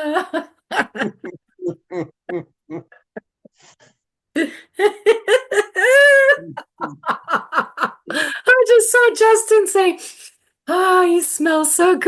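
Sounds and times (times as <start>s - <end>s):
person laughing: 0.7s - 3.7s, 4.8s - 8.2s
wavering vocal cry: 5.8s - 7.1s.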